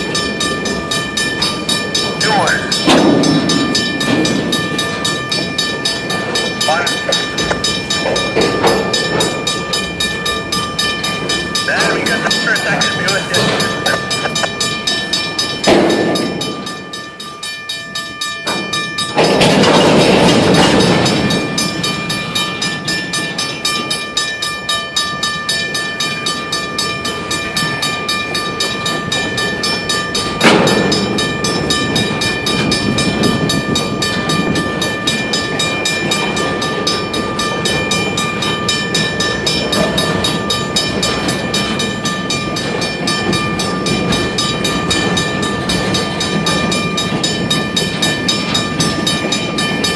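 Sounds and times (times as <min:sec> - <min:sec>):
freight train wheels clacking: 0:00.0 - 0:49.9
high ringing tone: 0:00.2 - 0:15.6.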